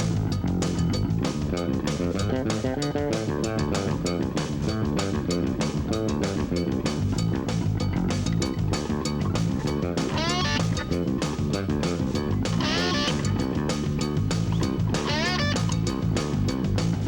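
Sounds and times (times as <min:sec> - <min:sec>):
bass guitar: 0:00.0 - 0:17.0
drum kit beat: 0:00.0 - 0:17.0
electric guitar: 0:09.6 - 0:13.7, 0:14.6 - 0:15.9.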